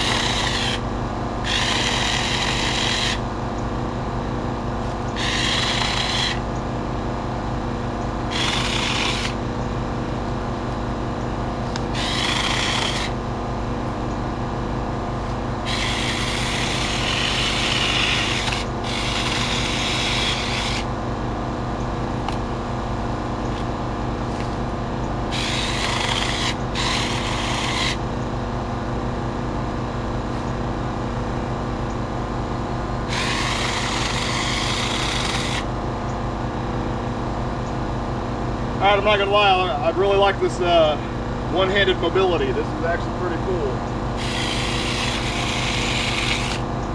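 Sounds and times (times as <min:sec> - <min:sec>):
electric chainsaw running: 0:00.0 - 0:03.3, 0:04.8 - 0:06.5, 0:08.2 - 0:09.5, 0:11.4 - 0:13.9, 0:15.2 - 0:20.9, 0:22.0 - 0:22.6, 0:23.5 - 0:28.1, 0:33.0 - 0:35.8, 0:44.1 - 0:46.8.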